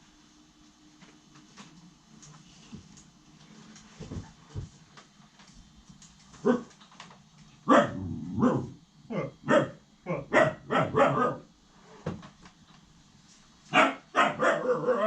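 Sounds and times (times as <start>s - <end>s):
puppy barking: 6.4s - 6.7s, 7.7s - 11.5s, 13.7s - 15.0s.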